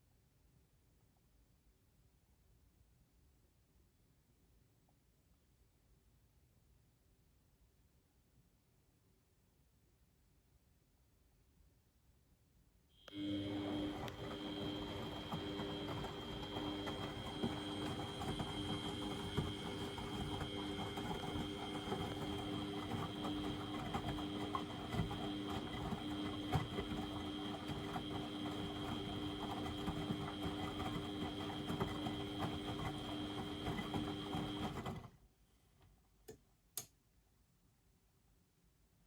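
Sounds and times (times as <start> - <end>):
washing machine humming: 13.1 - 35.2.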